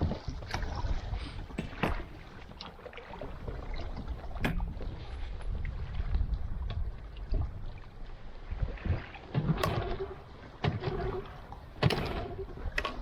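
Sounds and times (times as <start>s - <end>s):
wind rumble: 3.2s - 13.0s.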